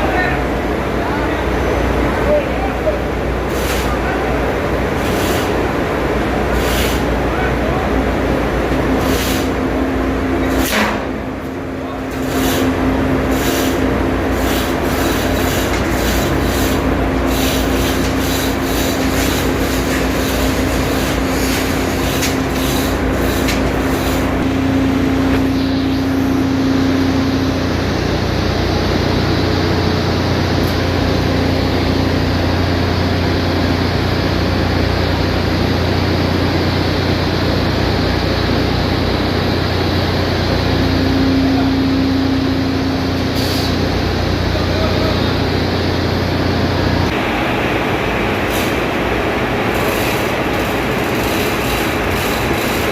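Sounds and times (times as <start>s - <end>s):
engine-room machinery hum: 0.0s - 52.9s.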